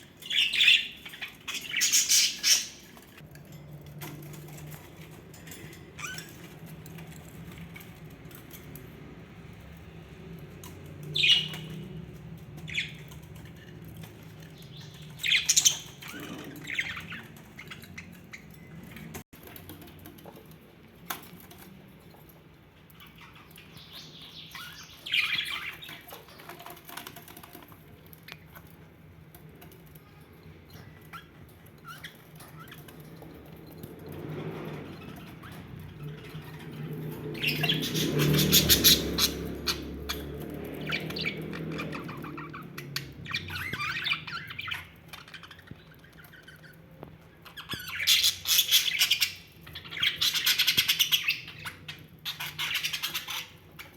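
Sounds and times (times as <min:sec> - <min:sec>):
budgerigars chirping and squawking: 0:00.0 - 0:03.2, 0:10.6 - 0:19.6, 0:22.9 - 0:27.7, 0:30.7 - 0:53.9.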